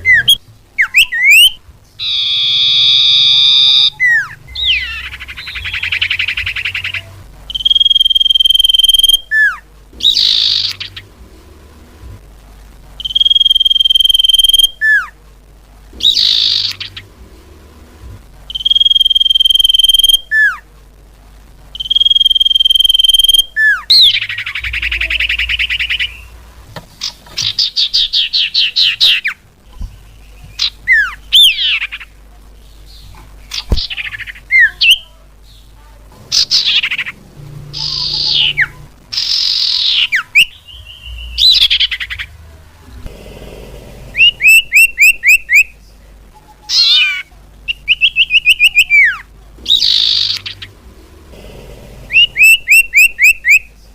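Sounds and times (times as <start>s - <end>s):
bird chattering trills: 0.0s - 11.2s, 16.0s - 17.2s, 21.8s - 26.4s, 32.8s - 42.4s, 43.8s - 45.8s, 46.7s - 53.8s
bird high whistles: 7.5s - 9.5s, 21.8s - 26.3s.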